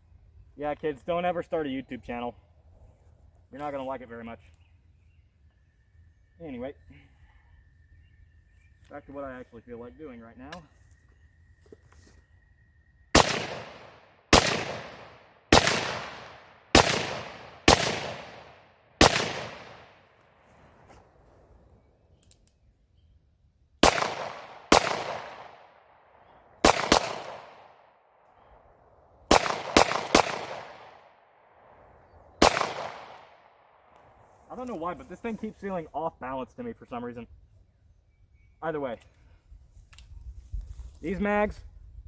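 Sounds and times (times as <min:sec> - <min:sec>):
pistol shots echoing: 0:13.1 - 0:20.0, 0:23.8 - 0:25.8, 0:26.6 - 0:27.8, 0:29.3 - 0:31.1, 0:32.4 - 0:33.6.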